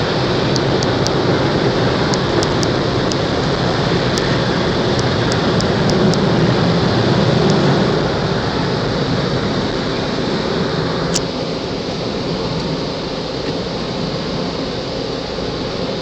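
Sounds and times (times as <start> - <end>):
car wash equipment rushing: 0.0 - 16.0.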